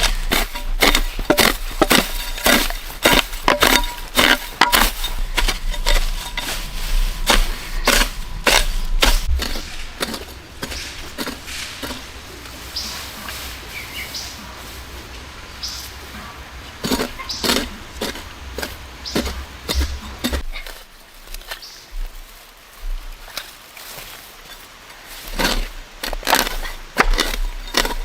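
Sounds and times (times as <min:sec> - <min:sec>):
sharp cracks and knocks: 0:25.3 - 0:28.0.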